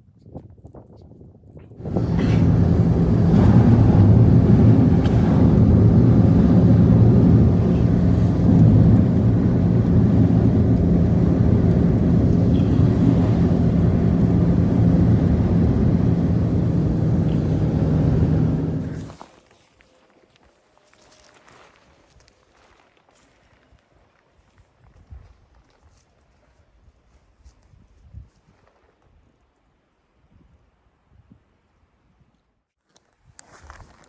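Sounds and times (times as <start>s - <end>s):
engine running: 1.8s - 19.2s.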